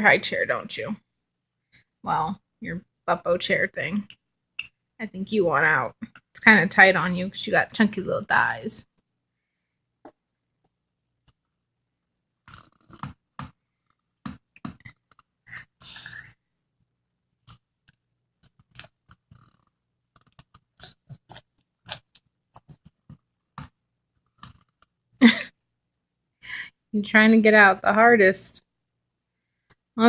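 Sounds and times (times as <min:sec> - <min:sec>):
baby vocal burst: 0:15.5 - 0:16.4
baby smacking and chewing: 0:17.5 - 0:23.7.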